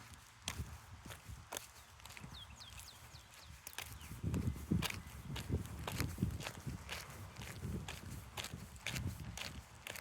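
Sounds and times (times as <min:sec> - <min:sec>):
footsteps walking: 0:03.6 - 0:10.0.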